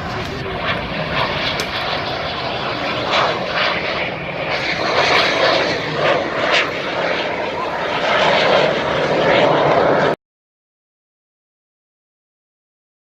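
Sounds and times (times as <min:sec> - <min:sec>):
aircraft engines overhead: 0:00.0 - 0:10.2.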